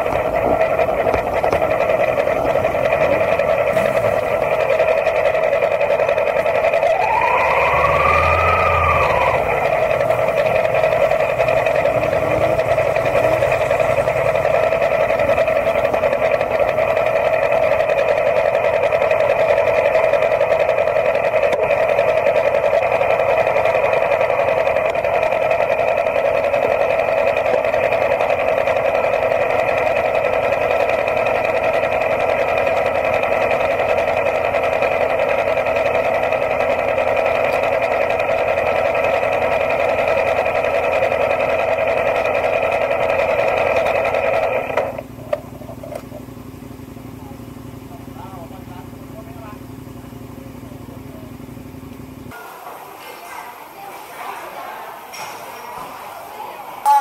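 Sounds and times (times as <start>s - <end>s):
motorcycle engine idling: 0.0s - 52.3s
brief whine: 6.8s - 14.6s.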